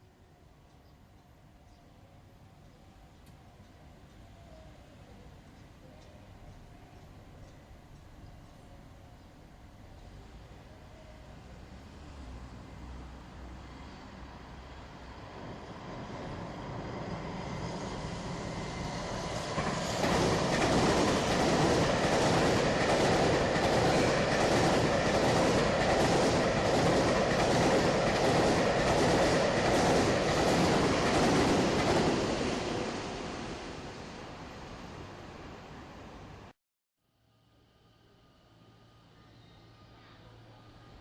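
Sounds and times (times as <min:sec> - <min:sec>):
freight train wheels clickety-clack: 0:18.0 - 0:32.9.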